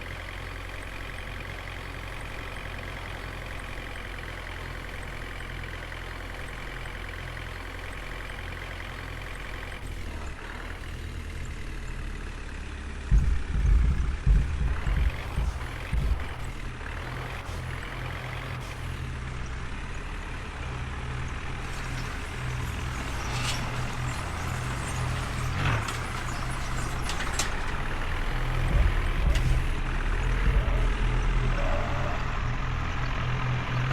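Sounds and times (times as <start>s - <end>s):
diesel tractor engine running: 0.0s - 33.9s
sharp knocks: 13.1s - 16.5s.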